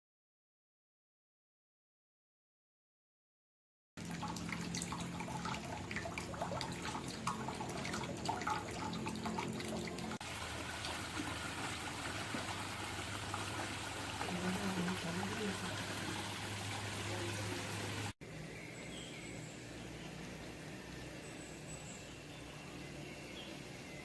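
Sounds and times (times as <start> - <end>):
flowing water rushing: 4.0 - 18.2
water trickling and splashing: 4.0 - 18.2
low steady hum: 4.0 - 24.0.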